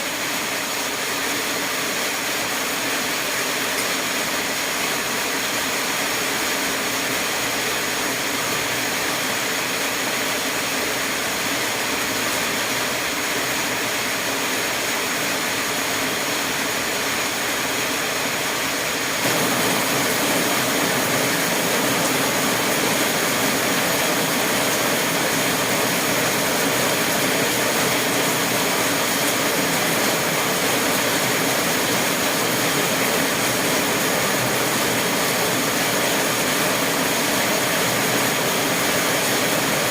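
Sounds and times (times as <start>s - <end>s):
steady rushing noise: 19.2s - 32.6s.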